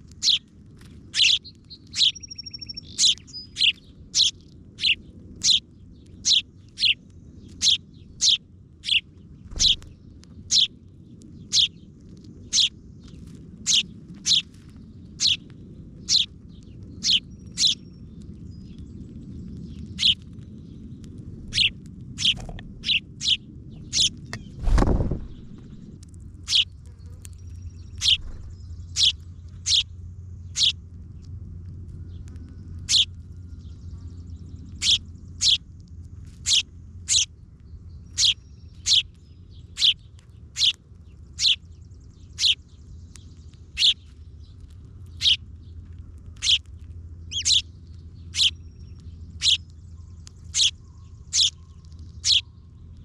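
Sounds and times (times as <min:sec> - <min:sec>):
low background rumble: 0:00.0 - 0:53.0
bird chirping: 0:00.1 - 0:00.5, 0:01.1 - 0:10.8, 0:11.4 - 0:14.5, 0:15.1 - 0:31.3, 0:32.0 - 0:53.0
dull thud: 0:24.6 - 0:25.9.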